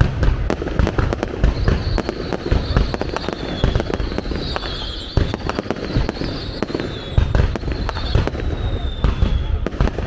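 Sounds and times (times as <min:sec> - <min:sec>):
fireworks booming and banging: 0:00.0 - 0:10.0
high wavering whistle: 0:01.6 - 0:09.6.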